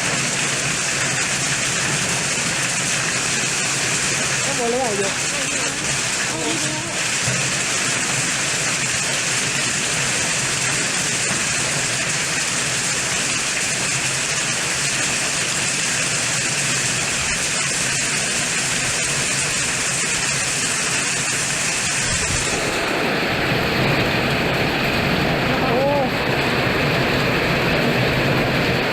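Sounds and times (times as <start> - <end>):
heavy rain downpour: 0.0 - 28.9.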